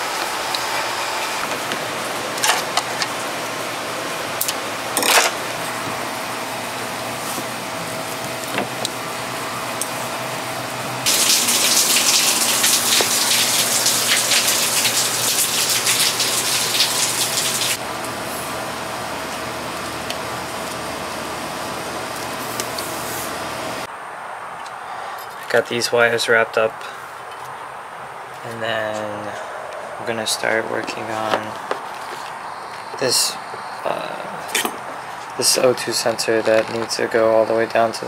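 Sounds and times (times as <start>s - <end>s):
steady rain: 11.0s - 17.8s.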